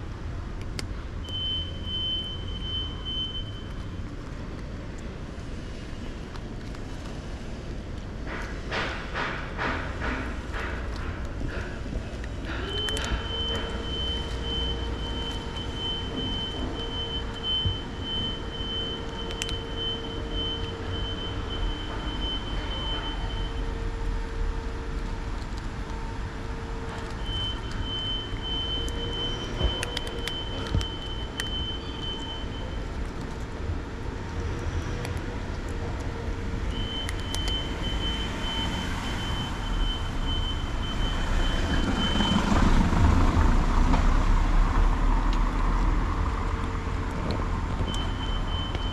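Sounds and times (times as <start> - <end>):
constant hum: 0.0 - 48.9
road traffic rumble: 0.0 - 48.9.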